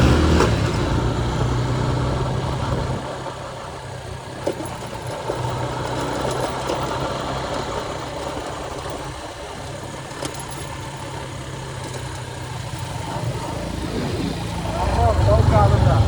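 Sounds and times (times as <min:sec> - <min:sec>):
motorcycle engine droning: 0:00.0 - 0:16.0.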